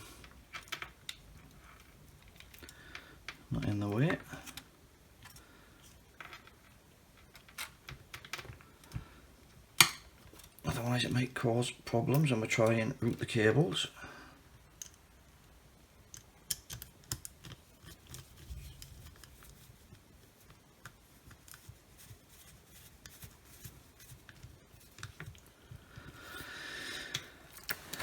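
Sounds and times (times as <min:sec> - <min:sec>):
clicks and taps of small parts: 0:16.1 - 0:21.6.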